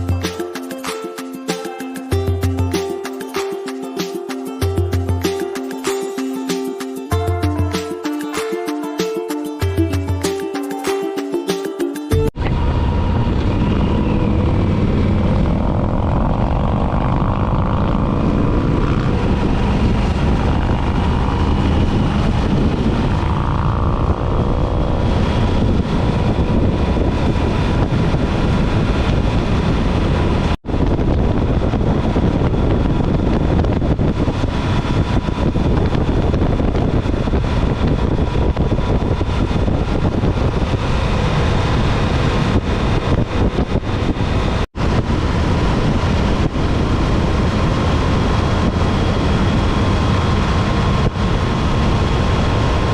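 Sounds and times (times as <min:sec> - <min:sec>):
motorcycle engine drone: 0:12.1 - 0:52.9
wind on microphone: 0:12.3 - 0:52.9.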